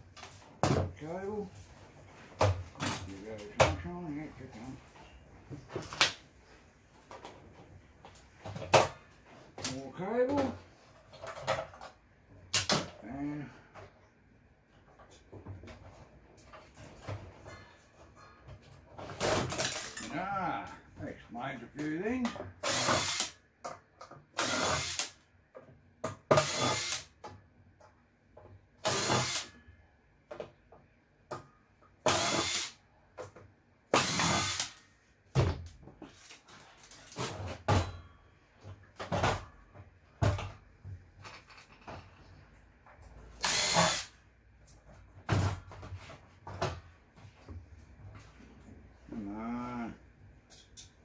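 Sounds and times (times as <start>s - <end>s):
power drill running: 24.4s - 25.1s, 26.4s - 27.1s, 28.8s - 29.5s, 32.1s - 32.8s, 34.0s - 34.8s, 43.4s - 44.1s.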